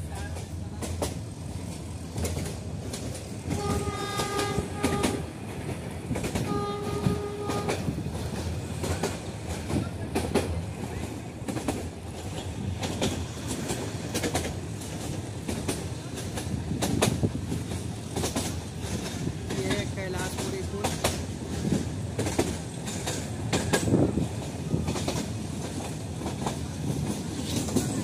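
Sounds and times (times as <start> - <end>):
train rumble: 0.0 - 28.0
wheels clattering over rail joints: 0.2 - 28.0
locomotive horn blasts: 3.5 - 5.3, 6.4 - 7.9.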